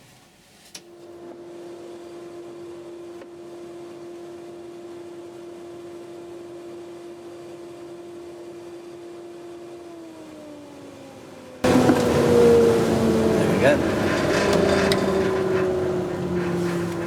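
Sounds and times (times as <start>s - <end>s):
wood lathe motor whine: 11.6s - 17.0s.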